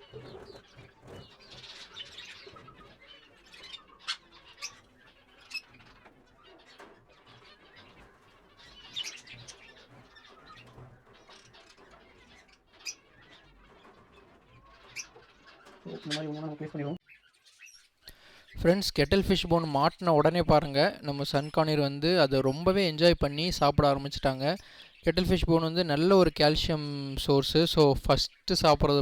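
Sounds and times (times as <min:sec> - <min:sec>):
sharp loud bird calls: 0:00.0 - 0:22.2
caged birds chattering: 0:00.0 - 0:29.0.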